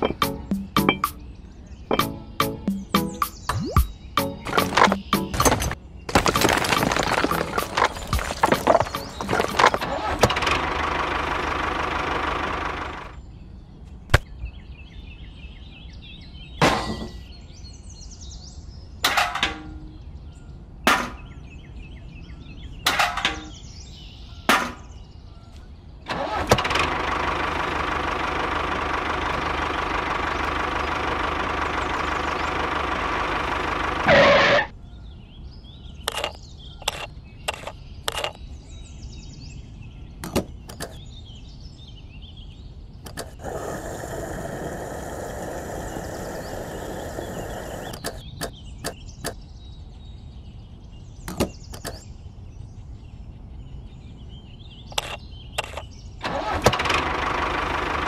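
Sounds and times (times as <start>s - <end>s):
clicks and taps of model parts: 43.0s - 43.4s, 51.3s - 52.0s.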